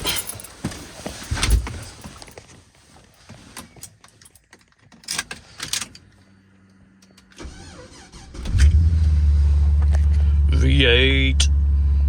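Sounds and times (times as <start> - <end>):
car engine cranking: 4.6 - 11.7.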